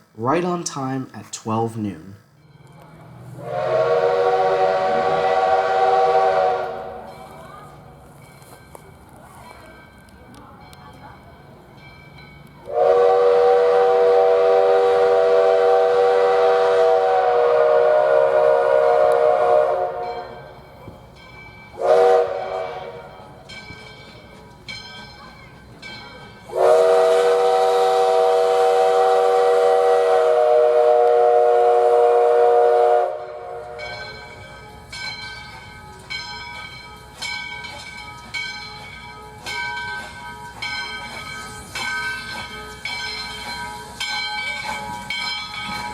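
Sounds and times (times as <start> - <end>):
steam locomotive chime whistle: 3.3 - 8.8, 11.8 - 45.9
locomotive bell ringing: 7.0 - 12.8, 19.8 - 26.7, 33.2 - 45.9.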